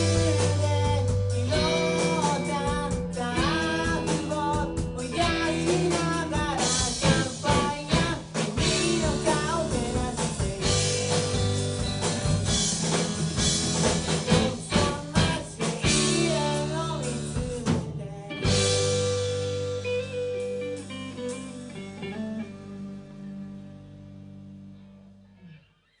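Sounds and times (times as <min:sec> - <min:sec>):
drum hits: 0:00.0 - 0:16.4
rock band playing live: 0:00.0 - 0:25.6
guitar chord ringing: 0:18.8 - 0:25.8.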